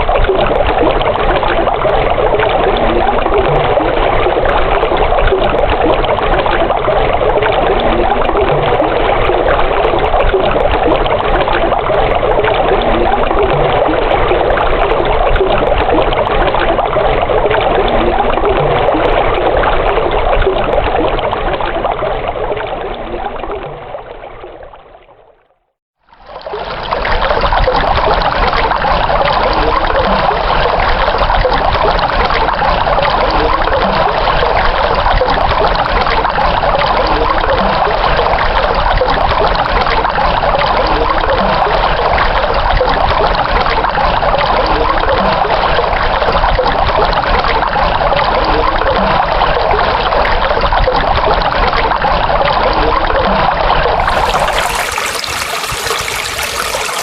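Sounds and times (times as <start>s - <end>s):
stream water trickling: 26.0s - 57.0s
hissy water sound: 54.0s - 57.0s.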